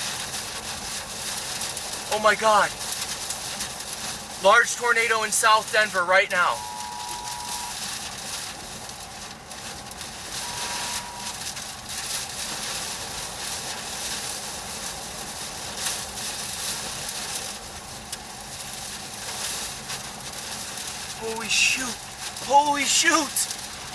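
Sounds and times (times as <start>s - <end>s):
rush of wind and rain: 0.0s - 6.0s, 6.7s - 23.9s
short electronic beep: 6.4s - 7.8s, 10.4s - 11.4s.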